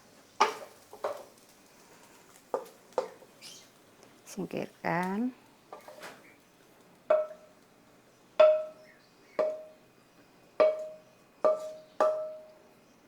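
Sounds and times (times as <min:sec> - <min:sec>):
metal utensil knocking on pan: 0:07.1 - 0:07.5, 0:08.4 - 0:08.8, 0:09.4 - 0:09.8, 0:10.6 - 0:12.5.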